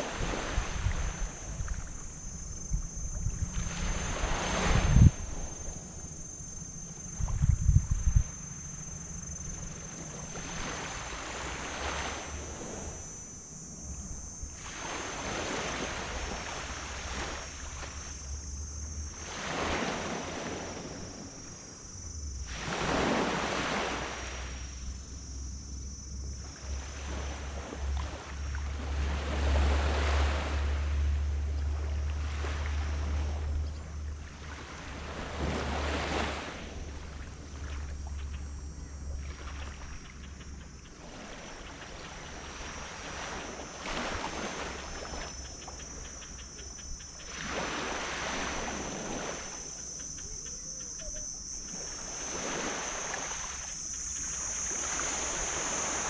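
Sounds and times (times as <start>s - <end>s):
waves breaking on sand beach: 0.0s - 25.5s, 26.3s - 38.3s, 39.0s - 56.0s
insects buzzing: 0.0s - 56.0s.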